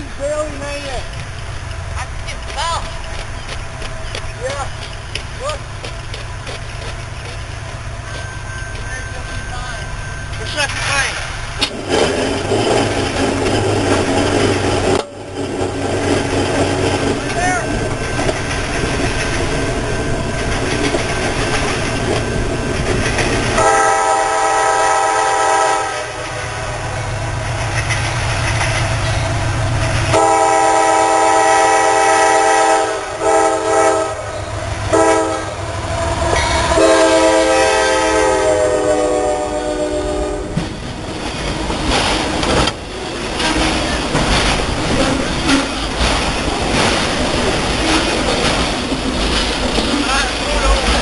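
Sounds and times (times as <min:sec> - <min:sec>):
train wheels clattering on rails: 0:00.0 - 0:51.0
locomotive air horn blasts: 0:23.6 - 0:26.4, 0:30.1 - 0:35.6, 0:36.5 - 0:40.6.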